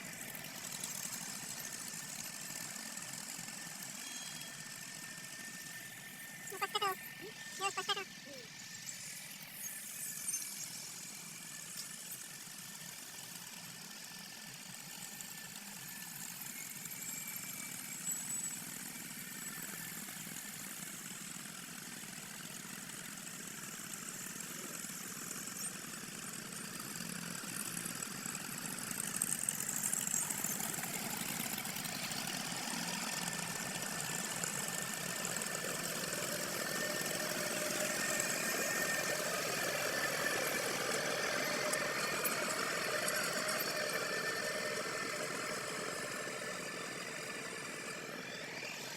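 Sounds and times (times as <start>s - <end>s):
tractor engine running: 0.0s - 4.0s, 26.0s - 48.6s.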